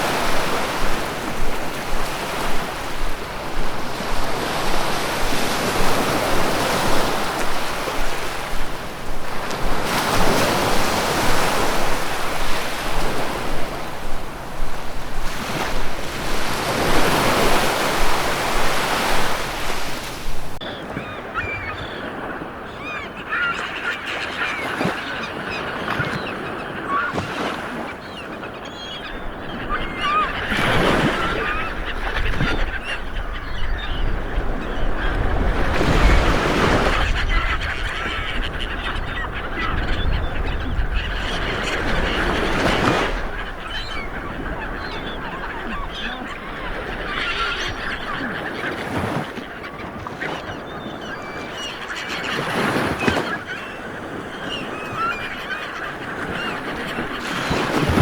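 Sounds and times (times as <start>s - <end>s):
ocean surf washing in: 0.0s - 20.6s
waterbirds honking: 0.0s - 58.0s.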